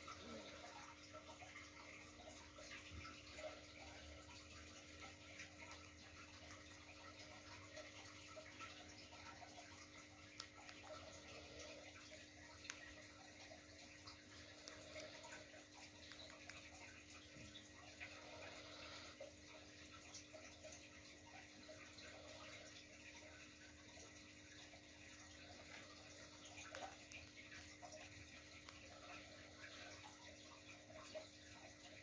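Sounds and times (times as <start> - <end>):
faint clicks: 9.2 - 13.2, 14.0 - 17.6.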